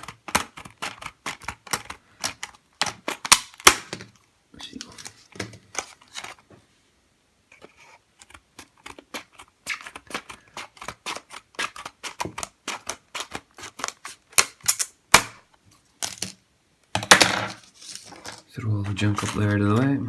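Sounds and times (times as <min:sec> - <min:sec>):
packaging snaps: 0:00.0 - 0:04.1
packaging clicks and taps: 0:00.0 - 0:04.2, 0:04.8 - 0:06.4, 0:07.6 - 0:15.4, 0:16.0 - 0:20.0.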